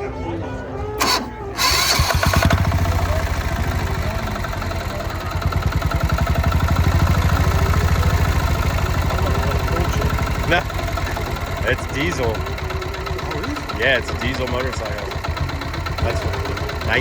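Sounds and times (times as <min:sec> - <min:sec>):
short noisy burst: 0:01.0 - 0:06.9
motorcycle engine idling: 0:01.0 - 0:17.0.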